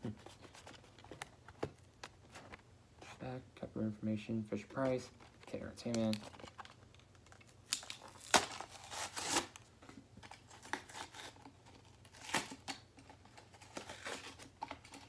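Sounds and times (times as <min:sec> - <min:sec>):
packaging being torn and crinkled: 0:05.8 - 0:15.0.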